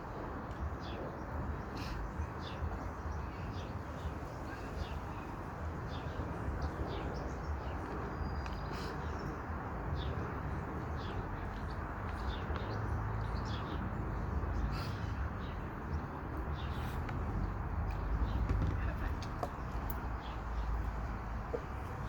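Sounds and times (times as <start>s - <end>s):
small birds chirping: 0.1s - 22.0s.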